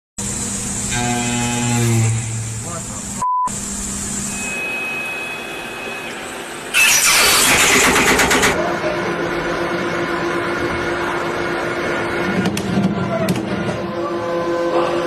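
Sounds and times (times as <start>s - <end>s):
machine whine and hum: 0.2s - 15.0s
cutting tool harsh rattling: 6.8s - 8.6s.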